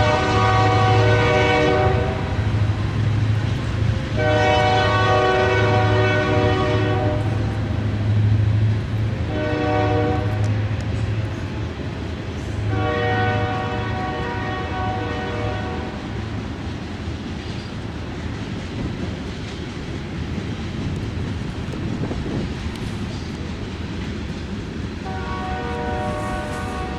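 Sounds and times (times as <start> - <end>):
locomotive air horn blasts: 0.0 - 2.6, 4.1 - 7.7, 9.3 - 10.5, 12.6 - 16.2, 25.0 - 26.9
train passing: 0.0 - 26.9.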